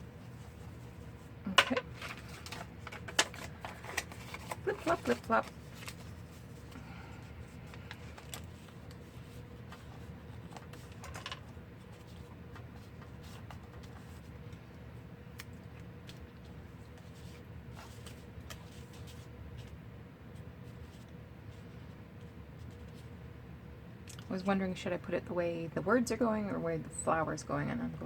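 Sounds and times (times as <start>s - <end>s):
steady low hum: 0.0s - 28.0s
paper rustling: 0.2s - 14.7s, 15.8s - 19.8s.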